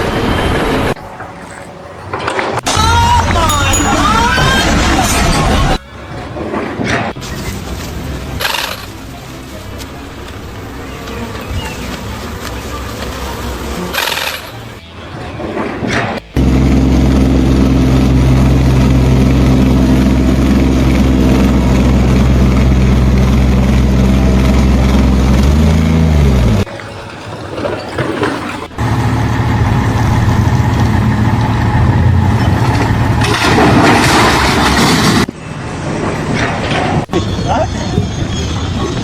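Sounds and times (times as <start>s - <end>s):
heavy engine running: 16.4s - 26.6s, 28.7s - 36.2s.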